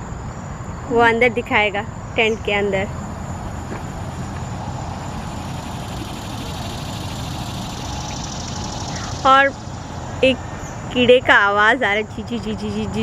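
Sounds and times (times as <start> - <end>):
insect pulsing chirr: 0.0 - 13.0
insects buzzing: 0.0 - 13.0
low rumble: 2.0 - 11.0.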